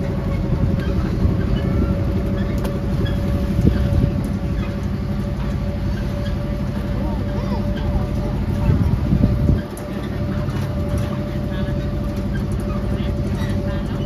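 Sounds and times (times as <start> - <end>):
constant whine: 0.0 - 14.0.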